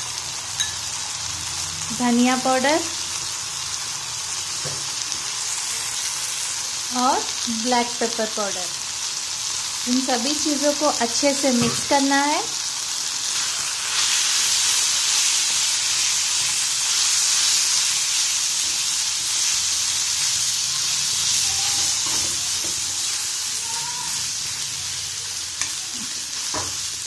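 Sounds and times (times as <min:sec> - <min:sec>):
meat sizzling in a frying pan: 0:00.0 - 0:27.0
metal spoon stirring: 0:00.6 - 0:00.9.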